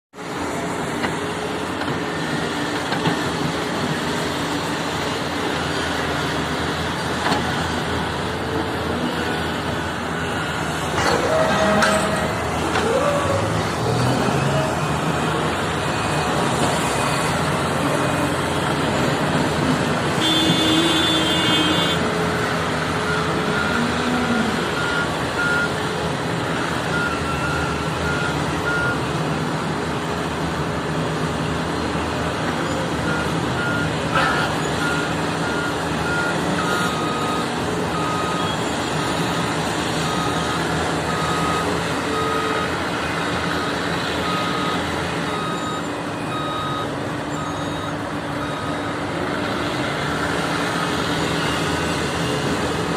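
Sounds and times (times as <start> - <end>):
heavy machinery running: 0.2 - 52.9
reversing alarm beeping: 9.6 - 17.8, 23.0 - 25.8, 26.5 - 29.8, 33.0 - 52.5.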